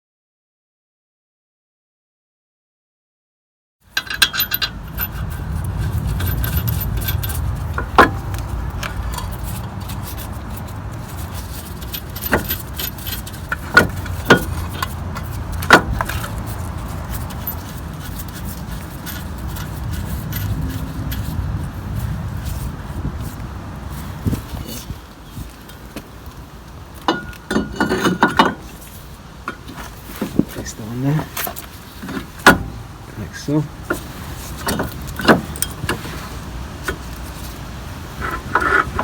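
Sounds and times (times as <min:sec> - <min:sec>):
metal parts clinking and knocking: 0:03.9 - 0:21.6, 0:27.0 - 0:28.8
steady low rumble: 0:04.0 - 0:27.8.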